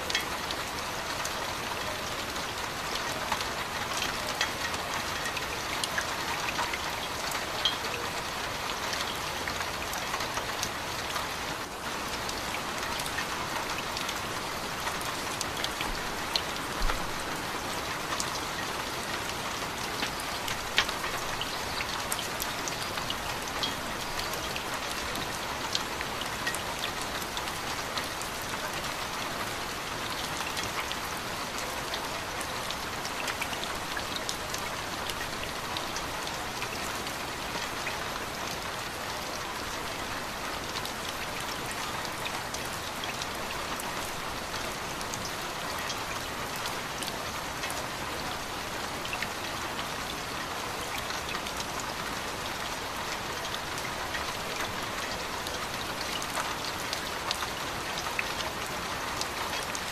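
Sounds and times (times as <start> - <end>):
raindrop ticks: 17.9 - 29.0.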